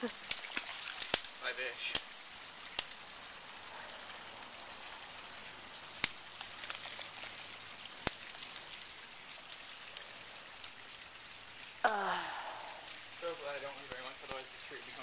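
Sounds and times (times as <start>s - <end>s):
steady outdoor hiss: 0.0s - 15.0s
sharp clicks or snaps: 6.0s - 7.0s.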